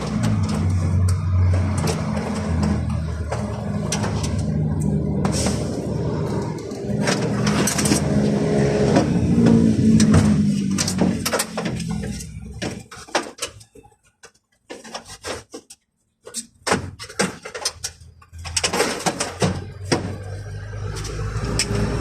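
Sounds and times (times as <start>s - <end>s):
sharp clicks and knocks: 0.0s - 5.4s, 6.2s - 22.0s
vehicle engine droning: 0.0s - 13.0s, 19.2s - 22.0s.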